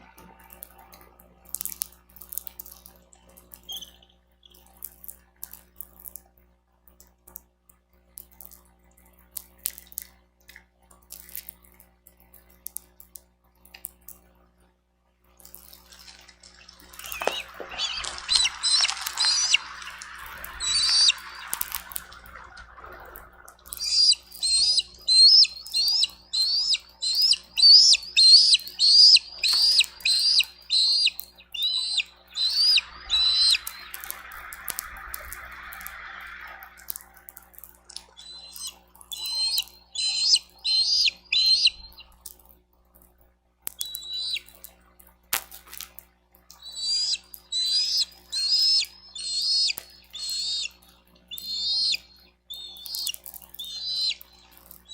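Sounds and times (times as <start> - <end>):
rain drips tapping: 15.4 - 42.4
eagle chattering: 15.9 - 37.3, 37.9 - 42.1, 43.8 - 44.5, 46.6 - 50.7, 51.3 - 54.9.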